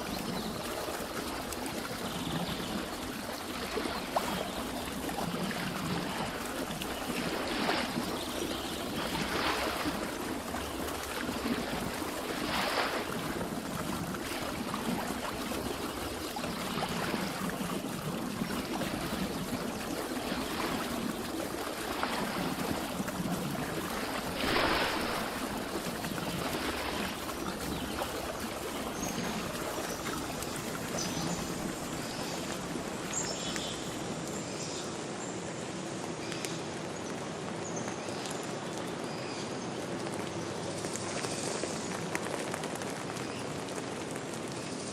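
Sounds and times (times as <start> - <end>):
running water rushing: 0.0 - 44.9.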